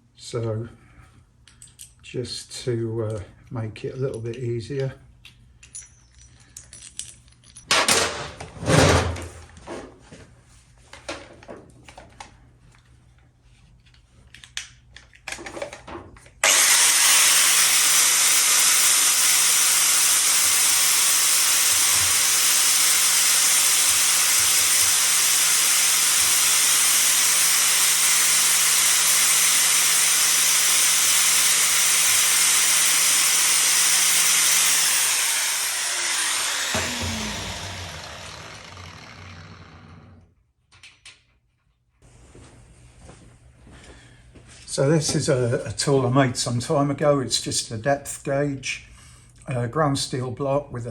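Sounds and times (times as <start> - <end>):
electric grinder running: 16.4 - 40.3.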